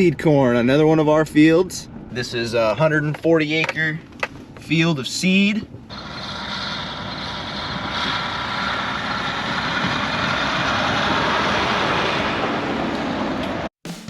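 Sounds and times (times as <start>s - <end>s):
combine harvester running: 5.9s - 13.7s.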